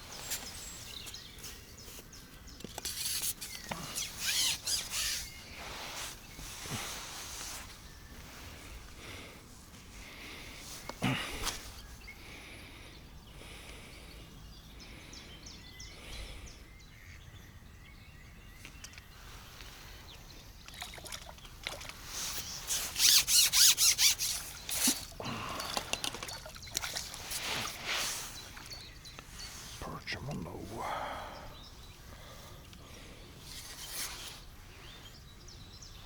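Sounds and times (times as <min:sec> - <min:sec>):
faint bird calls: 0:21.8 - 0:35.3.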